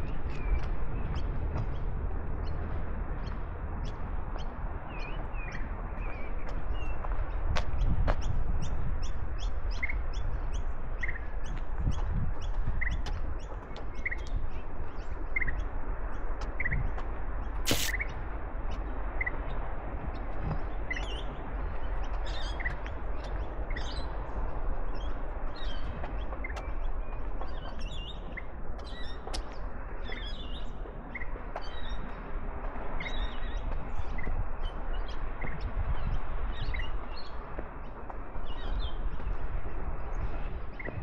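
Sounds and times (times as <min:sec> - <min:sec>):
high bird calls: 0:17.7 - 0:18.1.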